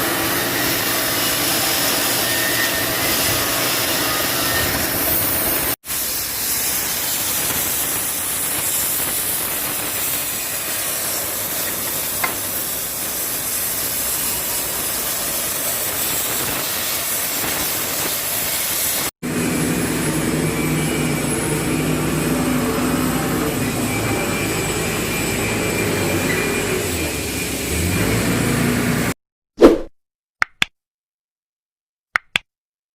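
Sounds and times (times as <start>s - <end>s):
gas cutting torch hissing: 0.0s - 29.0s.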